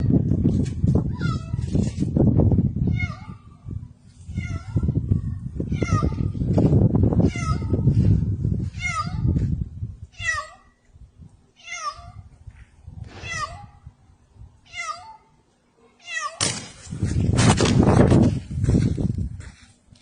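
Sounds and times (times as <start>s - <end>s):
cat meowing: 11.6s - 12.2s, 13.2s - 13.8s, 14.7s - 15.3s, 16.0s - 16.4s.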